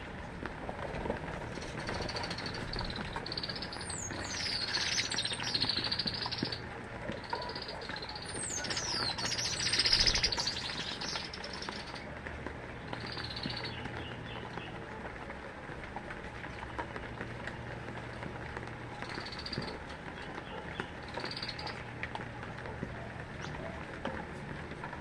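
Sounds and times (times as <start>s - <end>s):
small birds chirping: 1.5s - 15.0s, 18.6s - 24.0s
whistled bird notes: 1.8s - 6.6s, 7.3s - 12.0s.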